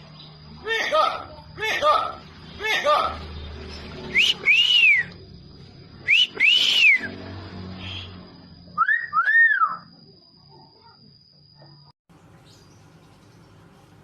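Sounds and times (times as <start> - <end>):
bird whistling: 4.1 - 5.2, 6.0 - 7.1, 7.8 - 8.2, 8.8 - 9.9.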